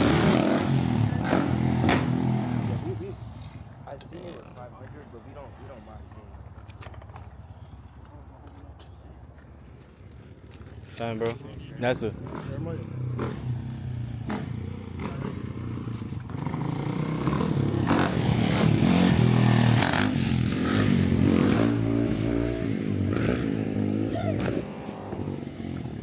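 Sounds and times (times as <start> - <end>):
motorcycle revving past: 0.0 - 3.6, 11.8 - 26.0.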